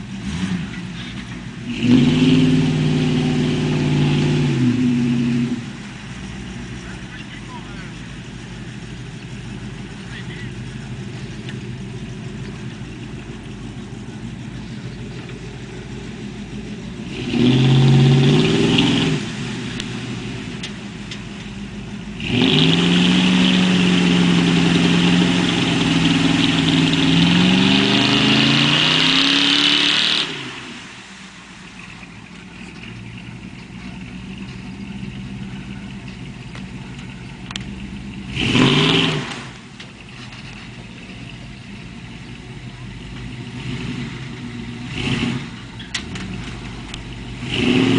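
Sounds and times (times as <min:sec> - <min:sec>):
truck engine revving: 0:00.0 - 0:47.9.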